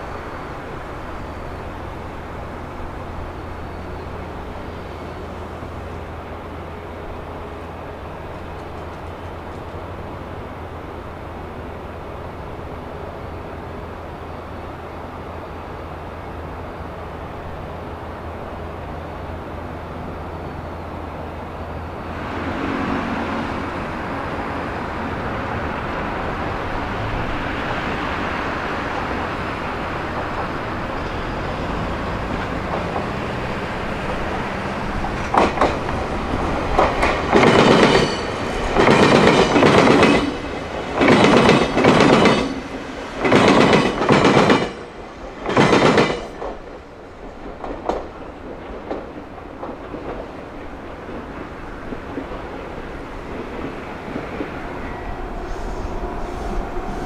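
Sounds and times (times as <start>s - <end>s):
train rumbling past: 0.0s - 57.0s
train wheels clanking over rail gaps: 22.1s - 57.0s.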